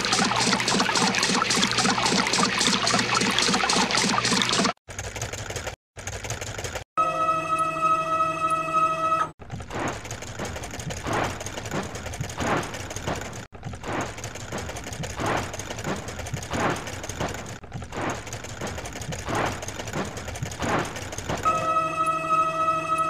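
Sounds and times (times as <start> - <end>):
brush scrubbing swish: 0.0 - 4.8
rotating brush mechanical whirr: 0.0 - 6.8.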